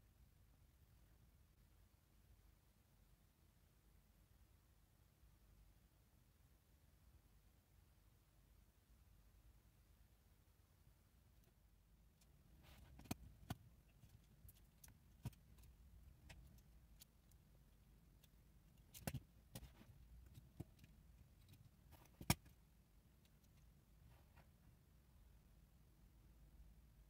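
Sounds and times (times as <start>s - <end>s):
small clicks and taps: 12.2s - 17.4s, 18.1s - 22.6s.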